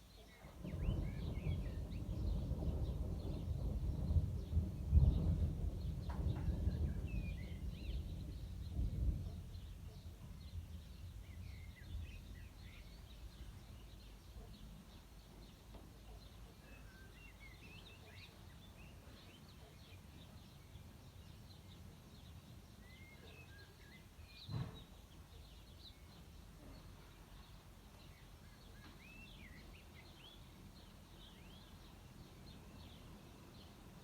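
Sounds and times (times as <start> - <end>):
small birds chirping: 0.0 - 34.0
thunder rumbling: 0.5 - 13.9
short thump: 24.5 - 25.0.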